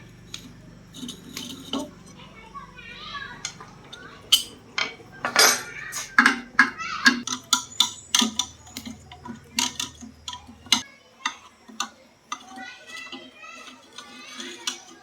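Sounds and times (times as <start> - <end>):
metallic clinks and taps: 3.4 - 13.2.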